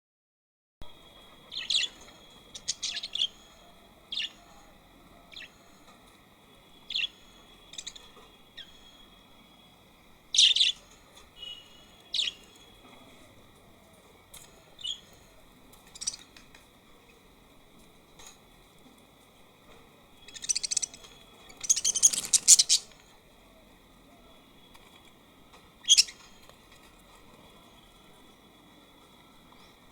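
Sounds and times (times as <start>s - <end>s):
birds chirping: 1.3s - 6.0s, 6.6s - 17.2s, 20.0s - 25.0s, 25.8s - 26.5s.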